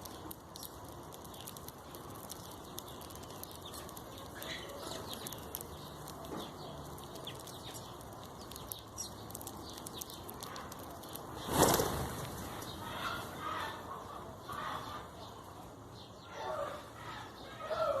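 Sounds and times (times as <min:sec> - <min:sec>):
small clicks and rustles: 0:00.0 - 0:12.8
birds wing-flapping: 0:11.1 - 0:12.8.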